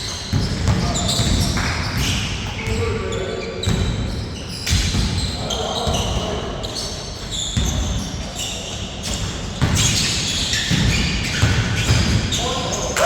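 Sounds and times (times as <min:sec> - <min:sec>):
basketball bouncing on court: 0:00.0 - 0:02.9, 0:03.6 - 0:06.3, 0:07.2 - 0:08.1, 0:09.0 - 0:12.8.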